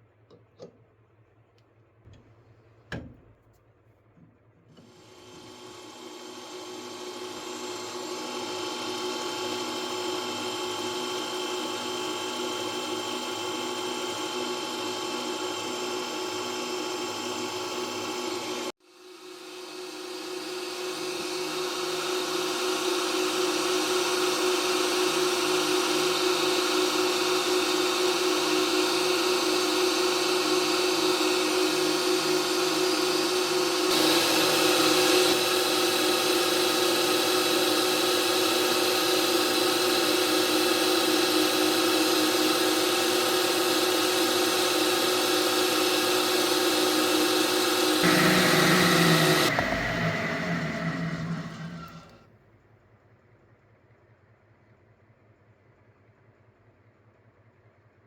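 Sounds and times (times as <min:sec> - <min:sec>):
machine tool motor humming: 0:29.9 - 0:52.2.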